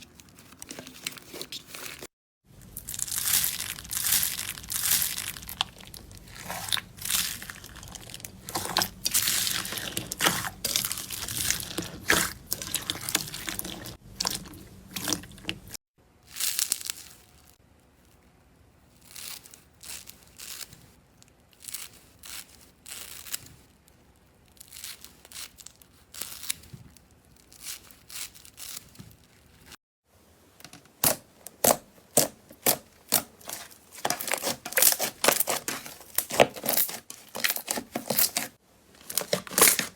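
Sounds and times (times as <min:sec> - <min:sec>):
slime crackling and popping: 0:02.6 - 0:15.7, 0:31.0 - 0:38.5.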